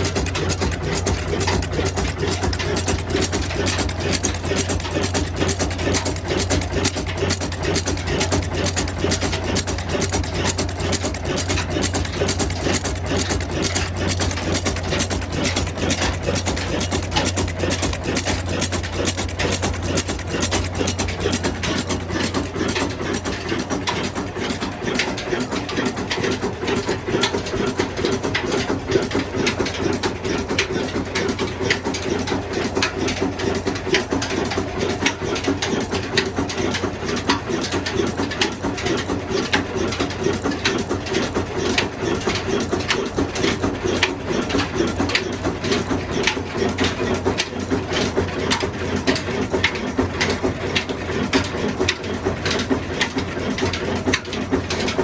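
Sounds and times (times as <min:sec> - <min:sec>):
diesel engine droning: 0:00.0 - 0:37.4
mechanical clatter and ticking: 0:00.0 - 0:55.0.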